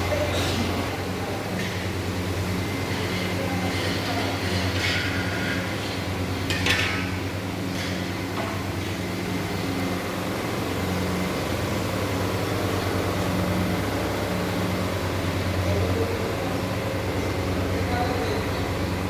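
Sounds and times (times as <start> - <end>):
machine motor hum: 7.2 - 19.0.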